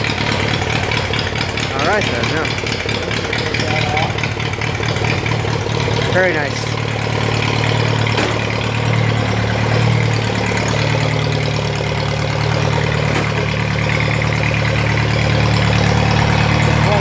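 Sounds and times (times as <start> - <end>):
small tractor engine idling: 0.0 - 17.0.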